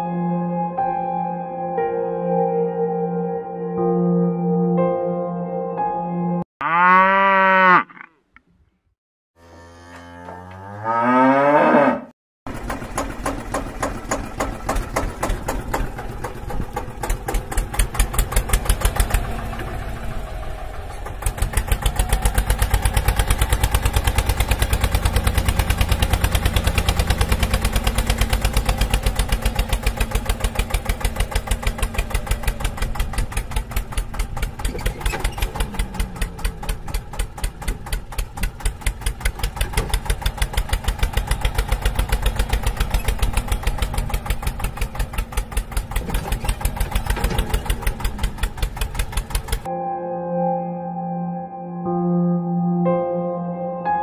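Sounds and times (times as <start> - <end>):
engine chugging: 12.5 - 49.7.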